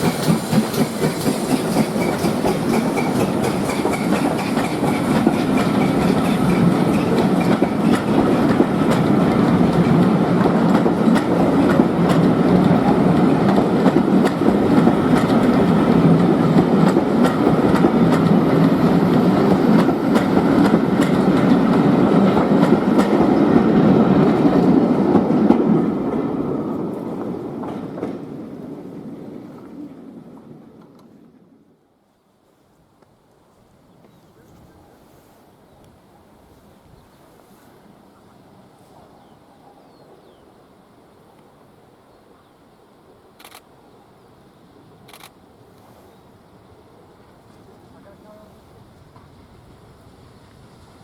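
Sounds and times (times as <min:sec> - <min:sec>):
wheels clicking over rail joints: 0:00.0 - 0:23.5
train coaches rumbling: 0:00.0 - 0:31.6, 0:45.6 - 0:51.0.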